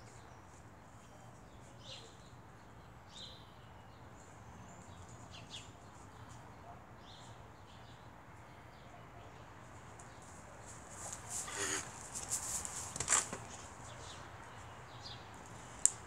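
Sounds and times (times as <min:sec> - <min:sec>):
small birds chirping: 0:12.8 - 0:16.0.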